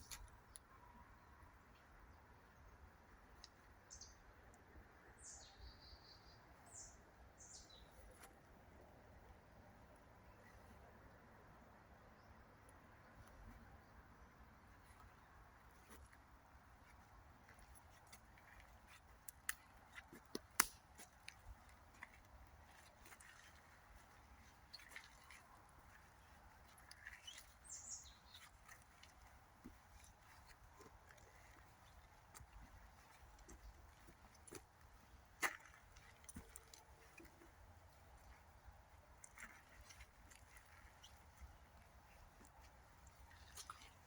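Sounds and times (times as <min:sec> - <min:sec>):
water drips and clicks: 0:16.8 - 0:44.0.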